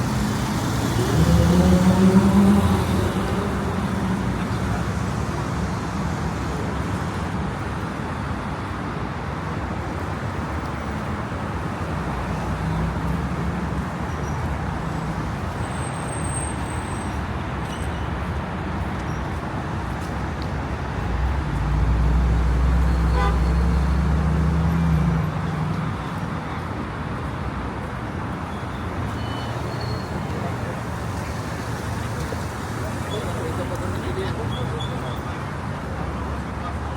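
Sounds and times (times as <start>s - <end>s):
heavy vehicle rumbling past: 0.0s - 6.7s, 19.7s - 26.1s
road traffic noise: 0.0s - 36.9s.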